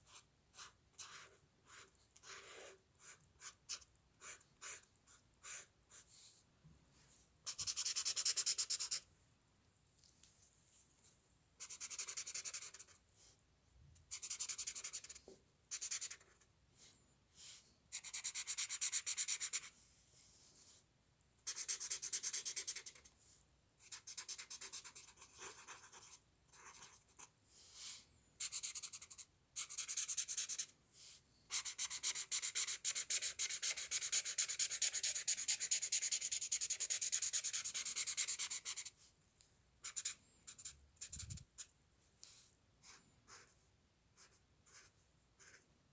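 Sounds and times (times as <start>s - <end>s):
drawing tool scratching on paper: 11.6s - 13.0s, 14.1s - 16.5s, 17.9s - 19.7s, 21.5s - 23.1s, 31.5s - 39.0s, 42.8s - 43.6s, 44.2s - 45.6s.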